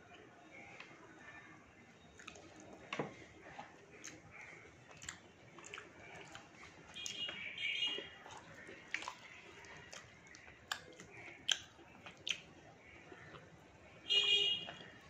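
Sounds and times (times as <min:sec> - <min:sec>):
person chewing: 0:02.2 - 0:02.7, 0:03.6 - 0:12.5
wet mouth clicks and smacks: 0:04.9 - 0:07.2, 0:08.9 - 0:09.2, 0:09.9 - 0:12.5.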